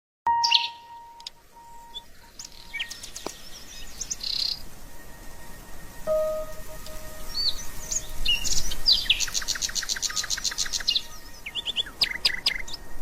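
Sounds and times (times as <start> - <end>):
low held tone: 0.3 - 3.0, 5.0 - 8.8
faint steady held tone: 0.3 - 12.0
birds chirping: 0.3 - 13.0.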